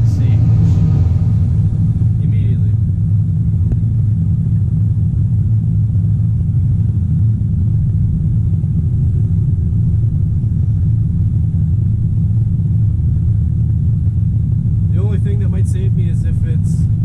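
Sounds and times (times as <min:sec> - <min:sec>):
excavator diesel engine droning: 0:00.0 - 0:02.9.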